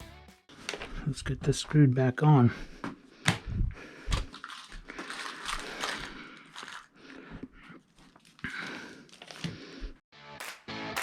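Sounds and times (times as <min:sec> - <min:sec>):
rustling handling noise: 0:04.1 - 0:07.2.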